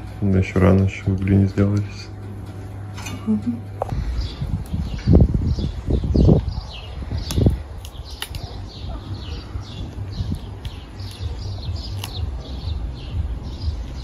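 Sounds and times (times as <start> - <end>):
low rumble: 0.0 - 14.0
small bird chirping: 4.0 - 14.0.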